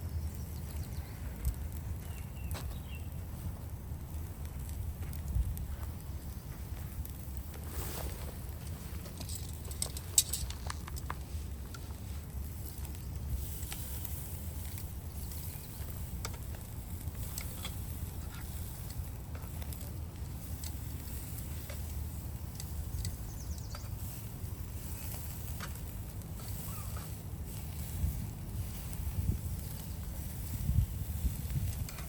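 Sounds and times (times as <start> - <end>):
fire crackling and popping: 0.0 - 32.0.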